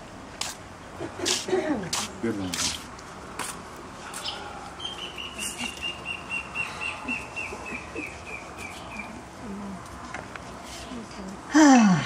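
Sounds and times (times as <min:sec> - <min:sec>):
bird calling clear notes: 0:04.2 - 0:09.2.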